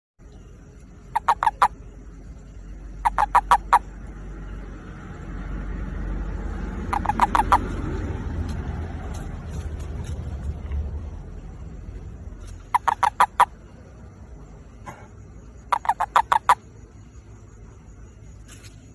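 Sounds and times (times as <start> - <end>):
low rumble: 0.2 - 15.7
toad croaking: 0.9 - 4.7, 6.0 - 8.2, 12.0 - 17.2.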